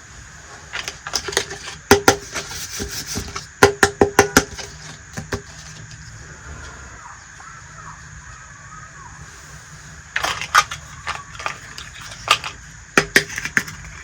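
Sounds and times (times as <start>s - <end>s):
steady background hum: 0.0s - 14.0s
toy pieces clicking and tapping: 10.2s - 14.0s.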